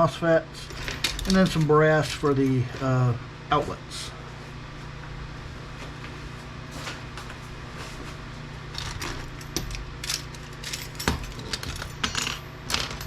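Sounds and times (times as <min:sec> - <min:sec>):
steady low hum: 0:00.0 - 0:13.0
metal scrap parts clinking: 0:00.6 - 0:02.6, 0:08.8 - 0:13.0.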